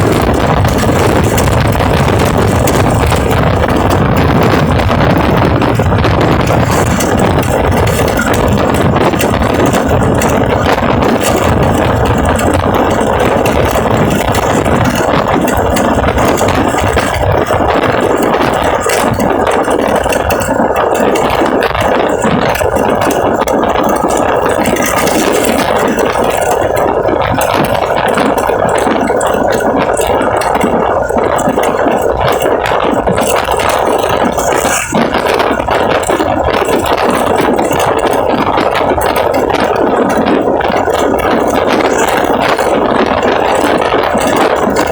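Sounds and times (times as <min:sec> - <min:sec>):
engine running with rattle: 0:00.0 - 0:44.9.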